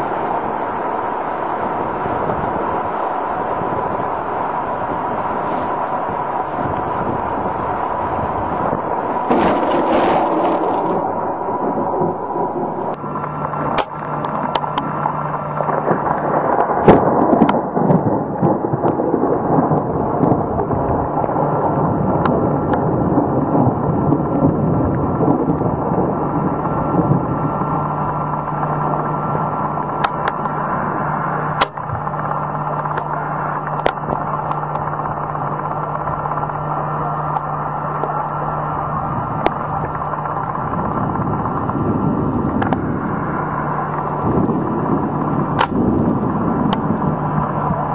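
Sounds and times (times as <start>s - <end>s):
wind rushing: 0.0s - 13.8s
heavy rain: 0.0s - 47.9s
steady low hum: 0.0s - 47.9s
sharp cracks: 9.1s - 14.9s, 31.6s - 41.8s, 45.2s - 47.7s.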